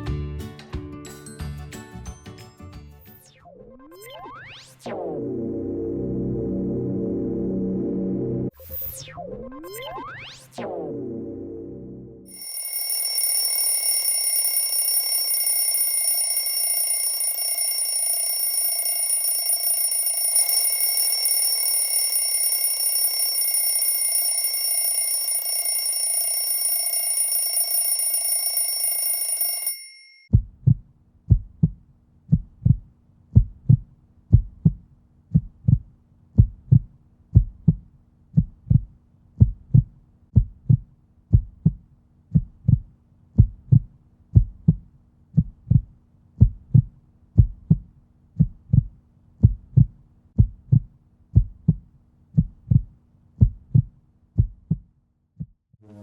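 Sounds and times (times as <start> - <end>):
high-pitched electronic whine: 3.2 - 12.2
heartbeat thumps: 30.3 - 55.6.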